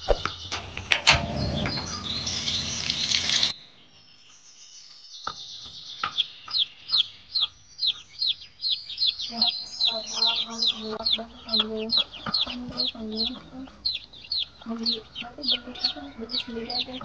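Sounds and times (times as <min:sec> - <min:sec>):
loud hiss: 0:01.0 - 0:03.5
bird calling high notes: 0:01.4 - 0:03.5.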